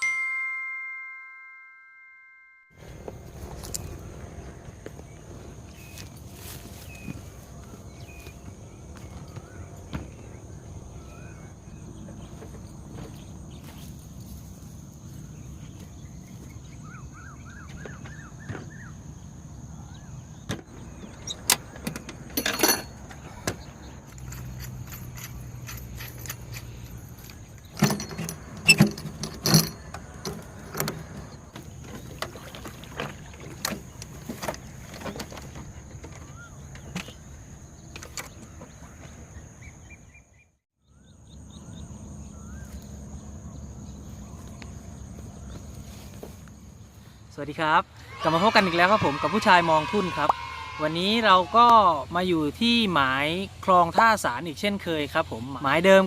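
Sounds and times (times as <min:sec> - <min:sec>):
high insect drone: 0:02.8 - 0:21.9.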